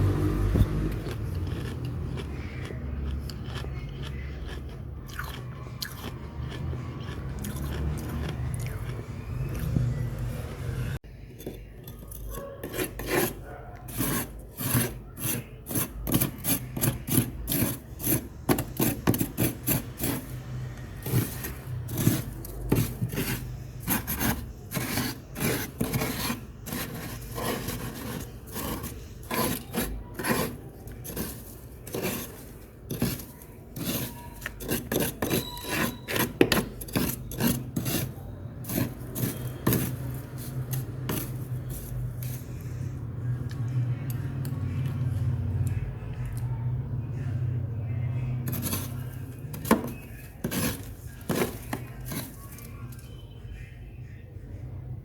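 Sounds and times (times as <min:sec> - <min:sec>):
freezer frost being scraped: 0:11.4 - 0:42.8, 0:48.5 - 0:53.2.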